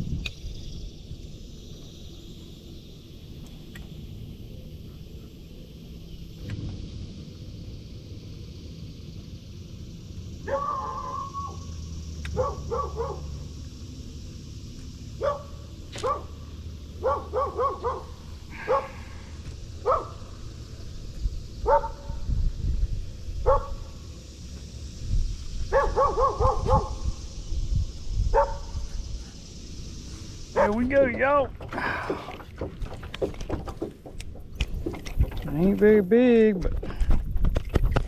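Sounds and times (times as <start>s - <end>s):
wind rumble on microphone: 0.0s - 1.9s, 19.4s - 30.8s, 31.5s - 38.0s
dog barking: 10.4s - 11.6s, 12.3s - 13.3s, 15.2s - 16.4s, 17.0s - 19.0s, 19.8s - 20.2s, 21.6s - 22.1s, 23.4s - 23.8s, 25.7s - 27.0s, 28.3s - 28.7s, 30.6s - 30.8s.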